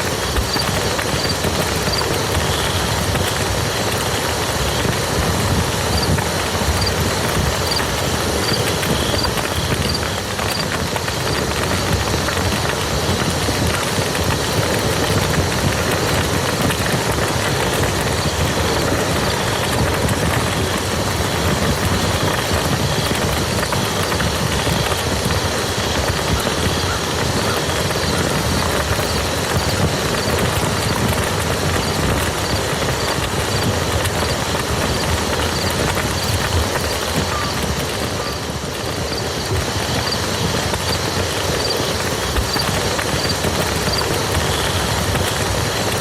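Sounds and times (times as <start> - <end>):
rain on wet mud: 0.0 - 46.0.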